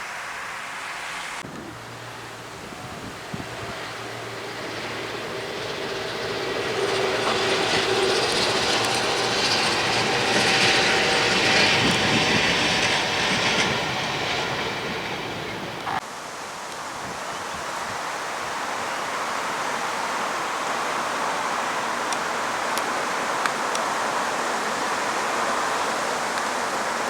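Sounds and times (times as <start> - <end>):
train wheels on rails: 1.4 - 16.0.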